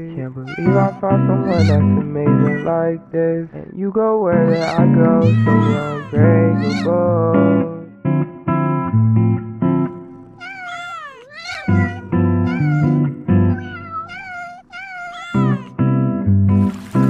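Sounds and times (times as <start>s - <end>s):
cat meowing: 0.0s - 2.8s, 4.4s - 7.0s, 10.3s - 15.8s.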